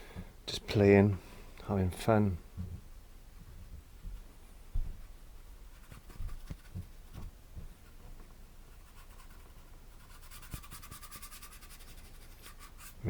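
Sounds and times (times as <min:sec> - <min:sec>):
soft low knocks: 0:02.5 - 0:05.1
paintbrush scrubbing on canvas: 0:08.7 - 0:13.0.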